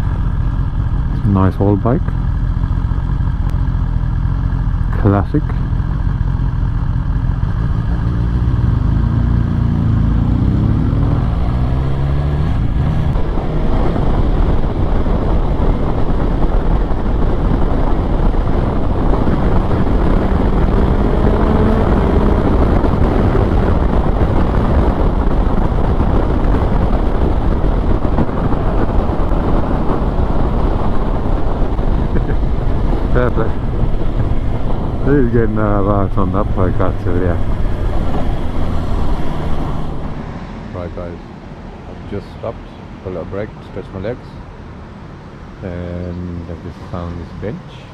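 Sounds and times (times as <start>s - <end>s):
motorcycle engine accelerating: 0.0s - 41.0s
heavy wind rush: 0.0s - 47.9s.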